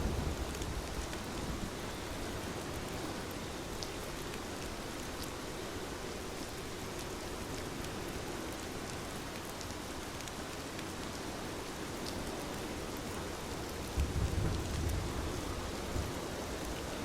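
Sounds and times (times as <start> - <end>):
heavy rain falling: 0.0 - 5.3, 8.6 - 17.0
sharp ticks of single raindrops: 6.4 - 15.0.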